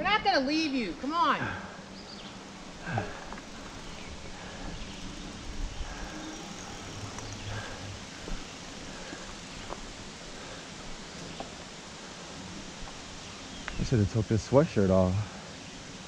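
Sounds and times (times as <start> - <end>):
bicycle rolling on path: 0.0 - 14.0
faint clicks: 2.2 - 9.9.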